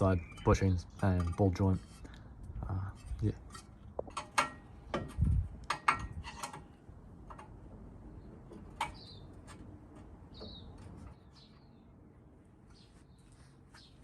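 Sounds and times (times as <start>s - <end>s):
bird chirping: 0.0s - 1.2s, 8.1s - 9.6s, 10.2s - 14.0s
hand tools clanking on metal: 0.0s - 2.1s, 3.0s - 7.5s.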